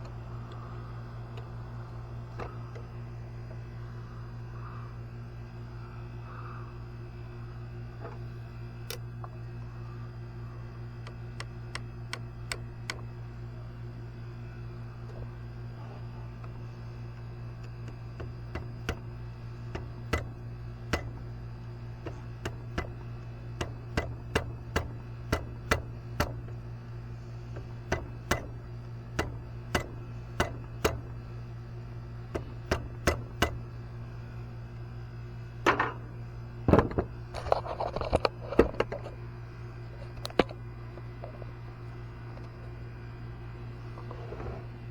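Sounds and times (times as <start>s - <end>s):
low hum: 0.0s - 44.9s
tools clicking and knocking on metal: 17.6s - 19.1s, 22.0s - 26.6s, 27.6s - 28.6s, 29.2s - 31.1s, 32.3s - 33.6s.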